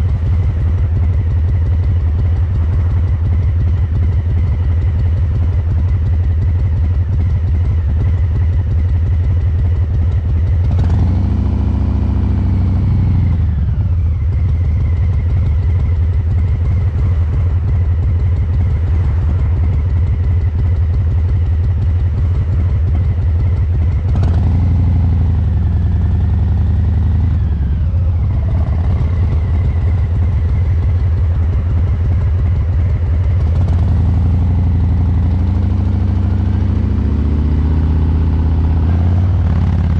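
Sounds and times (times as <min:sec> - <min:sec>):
motorcycle exhaust beat: 0:00.0 - 0:39.9.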